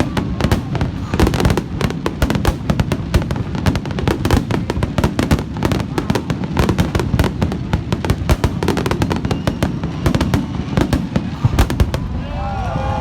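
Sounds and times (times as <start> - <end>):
fireworks bangs and crackles: 0.0 - 13.0
low rumbling booms: 10.0 - 13.0.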